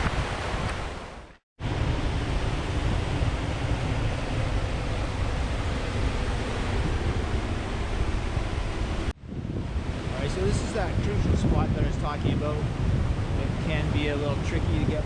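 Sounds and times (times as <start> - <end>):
surf washing onto rocky beach: 0.0 - 9.0
wind rumbling on microphone: 0.0 - 15.0.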